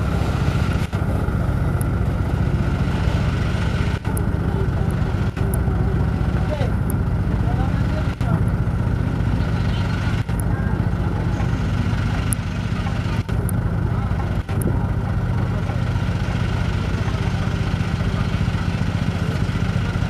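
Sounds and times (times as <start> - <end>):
truck engine labouring uphill: 0.0 - 20.0.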